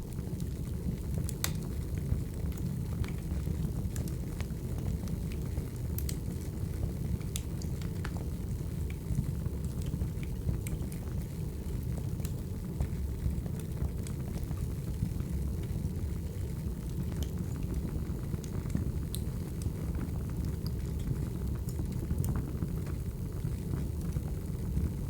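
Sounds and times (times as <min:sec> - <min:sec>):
fire pops and snaps: 0:00.1 - 0:11.3, 0:15.6 - 0:23.0.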